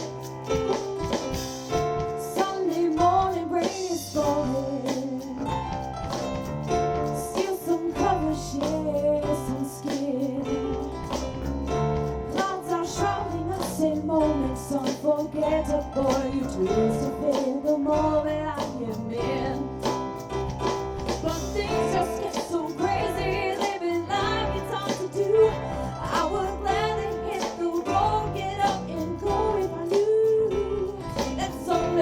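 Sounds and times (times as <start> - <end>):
live soul band playing: 0.0 - 32.0.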